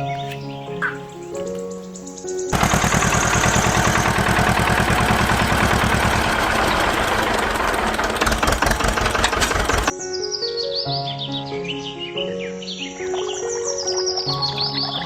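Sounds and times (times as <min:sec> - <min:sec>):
small engine running: 0:02.5 - 0:09.9.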